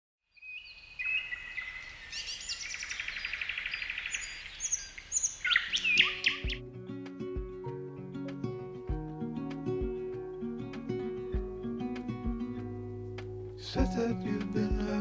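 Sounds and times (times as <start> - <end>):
small birds singing: 0.3 - 6.7
acoustic guitar music: 5.9 - 15.0.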